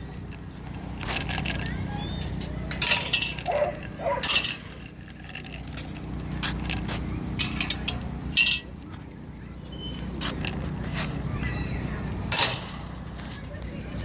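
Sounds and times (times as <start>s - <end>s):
metal clinking and jingling: 1.5s - 6.8s, 7.4s - 8.8s, 11.6s - 13.6s.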